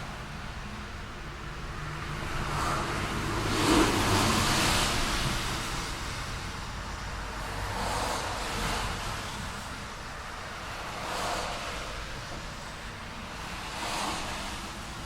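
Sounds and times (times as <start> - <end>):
traffic engine hum and tyre hiss: 0.0 - 15.0
car passing: 1.8 - 12.6.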